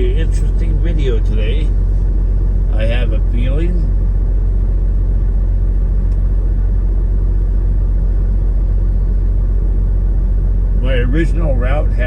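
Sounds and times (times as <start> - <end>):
diesel truck engine droning: 0.0 - 12.0.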